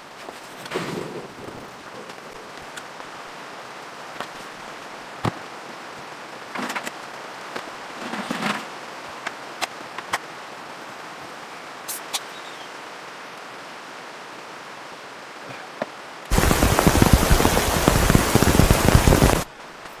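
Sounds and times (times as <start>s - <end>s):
rain hiss: 0.0s - 20.0s.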